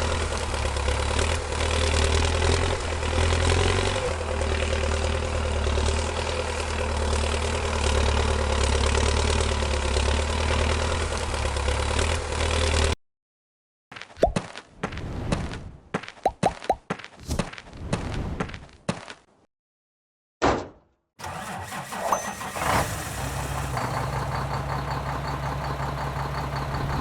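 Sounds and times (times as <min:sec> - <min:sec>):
tractor engine idling: 0:00.0 - 0:13.0, 0:21.2 - 0:27.0.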